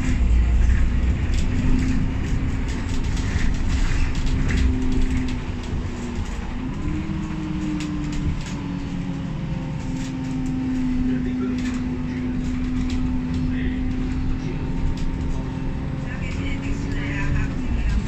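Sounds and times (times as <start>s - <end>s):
bus drivetrain whining: 0.0s - 18.0s
bus road rumble: 0.0s - 18.0s.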